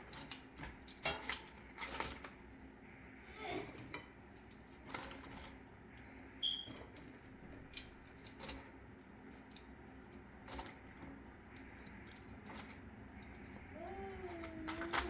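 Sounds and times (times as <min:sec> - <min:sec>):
low steady hum: 0:12.1 - 0:15.0.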